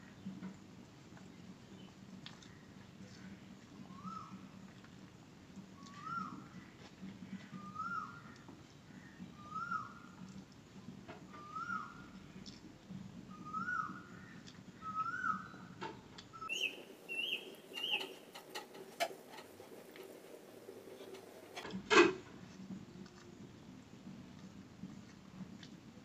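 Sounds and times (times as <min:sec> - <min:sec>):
eating with mouth and hands: 0:02.2 - 0:03.2, 0:12.4 - 0:13.0, 0:22.4 - 0:23.4
birds calling: 0:07.5 - 0:10.1, 0:11.3 - 0:12.2, 0:13.3 - 0:21.6.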